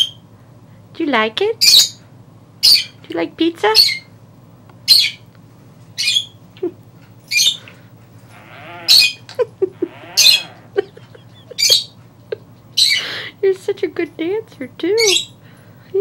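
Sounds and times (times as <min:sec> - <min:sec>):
parrot squawking: 0:02.6 - 0:03.0, 0:03.7 - 0:04.1, 0:04.9 - 0:05.2, 0:06.0 - 0:06.4, 0:07.3 - 0:07.6, 0:08.3 - 0:10.8, 0:11.5 - 0:12.0, 0:12.8 - 0:13.1, 0:15.0 - 0:15.3
parrot chatter: 0:07.2 - 0:12.0, 0:12.7 - 0:13.3, 0:15.0 - 0:15.4.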